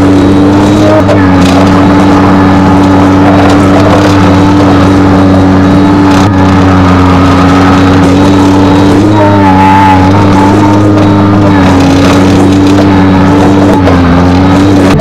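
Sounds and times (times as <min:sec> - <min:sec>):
wavering higher tone: 0:00.0 - 0:14.5
skid steer engine running: 0:00.0 - 0:15.0.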